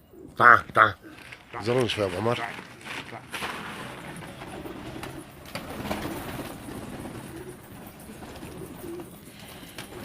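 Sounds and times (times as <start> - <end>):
pigeons cooing: 0.0 - 1.8, 4.0 - 10.0.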